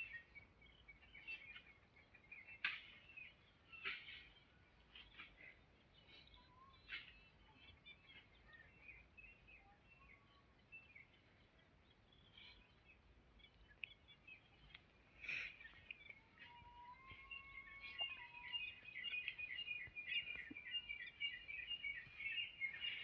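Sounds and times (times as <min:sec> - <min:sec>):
birds chirping: 0:00.0 - 0:23.0
whistled bird notes: 0:06.0 - 0:11.1, 0:12.1 - 0:23.0.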